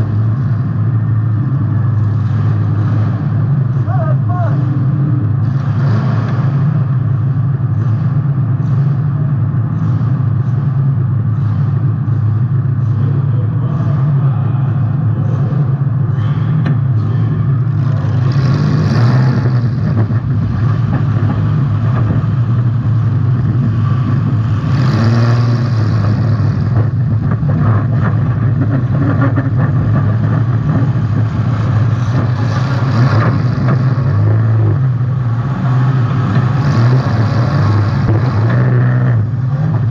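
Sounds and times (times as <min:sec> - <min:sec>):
car engine running loud: 0:00.0 - 0:39.9.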